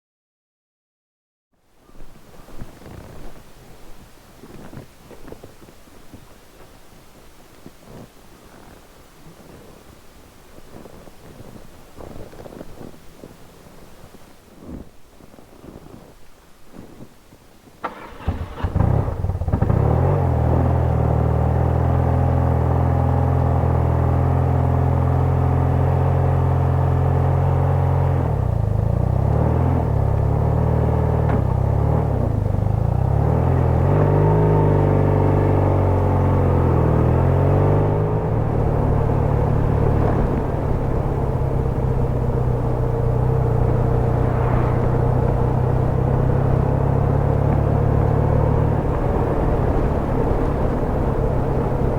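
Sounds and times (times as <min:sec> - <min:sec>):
motorcycle engine running: 0:17.9 - 0:51.9.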